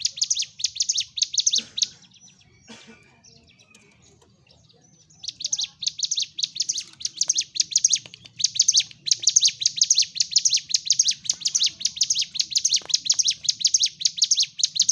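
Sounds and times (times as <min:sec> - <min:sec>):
bird singing rapid chirps: 0:00.0 - 0:14.9.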